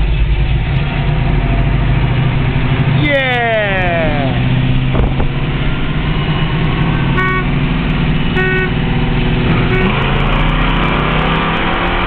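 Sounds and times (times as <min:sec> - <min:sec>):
car engines racing: 0:00.0 - 0:12.0
car horn honks: 0:07.1 - 0:07.6, 0:08.3 - 0:08.8, 0:09.5 - 0:10.0.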